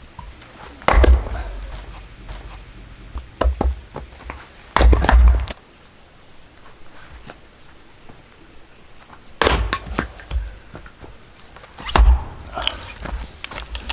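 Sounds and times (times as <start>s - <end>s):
axe striking firewood: 0.2s - 5.6s.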